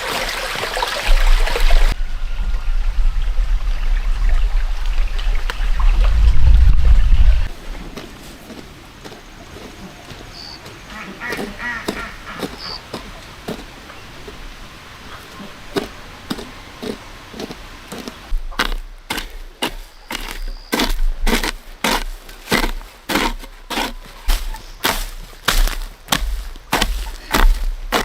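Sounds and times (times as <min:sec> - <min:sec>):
wood being chopped: 0:18.6 - 0:28.0.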